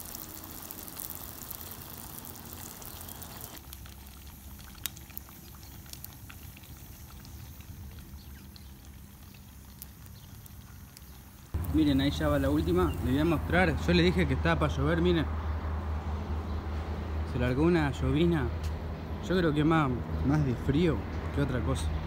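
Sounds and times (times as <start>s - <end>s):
dough sizzling in hot fat: 0.0s - 14.0s.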